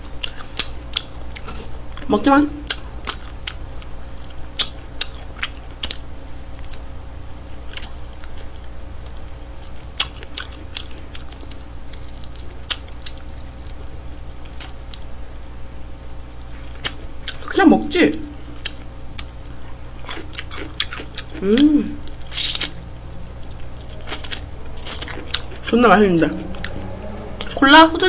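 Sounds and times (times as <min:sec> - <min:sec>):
person chewing and gnawing: 0:00.0 - 0:17.5, 0:18.5 - 0:25.7
steady low hum: 0:00.0 - 0:28.0.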